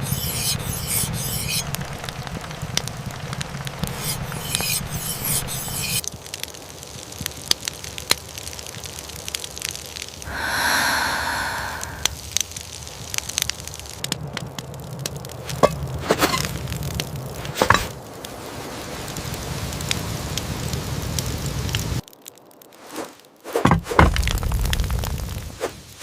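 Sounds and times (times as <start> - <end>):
campfire crackling and popping: 0.7 - 10.3, 12.0 - 26.0
hiss: 10.2 - 12.4
knocks and rustles: 23.5 - 24.9.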